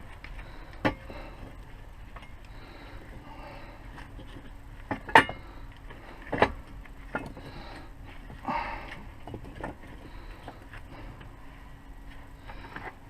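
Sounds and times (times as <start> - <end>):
knocks and clanks: 4.2 - 5.5.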